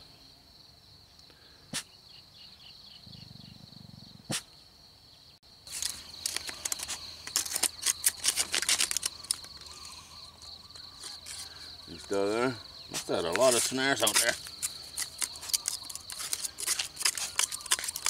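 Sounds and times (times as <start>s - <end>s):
high-pitched insect drone: 5.5s - 18.0s
loud crackling rustles: 5.7s - 9.8s, 13.0s - 18.0s.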